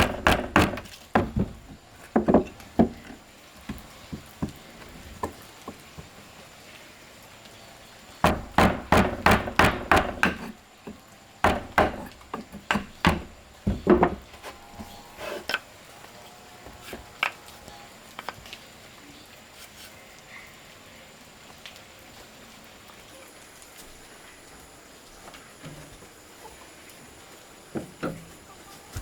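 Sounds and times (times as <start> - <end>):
tool knocking on wood: 0.0 - 4.6, 8.2 - 14.3.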